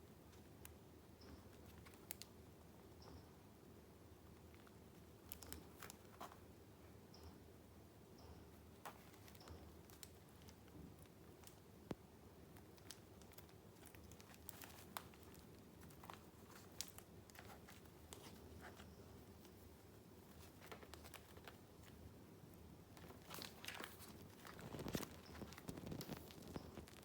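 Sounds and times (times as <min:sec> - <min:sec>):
paper rustling and crinkling: 0:12.6 - 0:22.0, 0:22.9 - 0:27.0.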